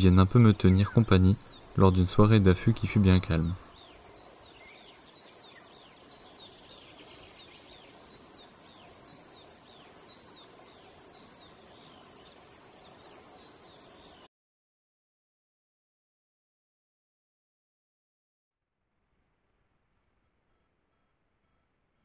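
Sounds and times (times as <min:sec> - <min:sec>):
steady high hiss: 0:00.0 - 0:14.3
small bird chirping: 0:00.2 - 0:14.3.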